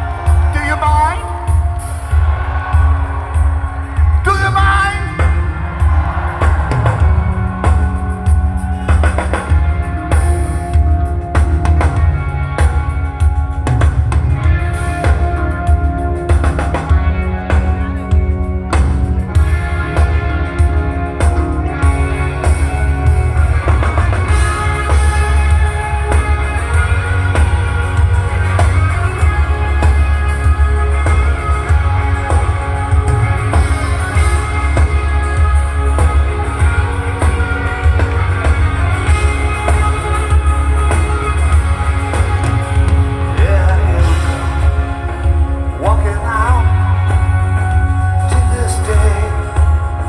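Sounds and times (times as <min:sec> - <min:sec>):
live rock band playing: 0:00.0 - 0:50.0
person singing: 0:33.5 - 0:50.0.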